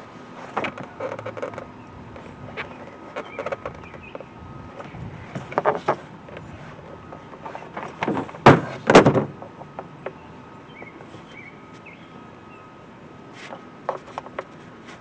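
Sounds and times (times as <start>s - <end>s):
quiet handling of parts: 0.2s - 10.2s
sharp plastic clunks: 7.1s - 10.2s.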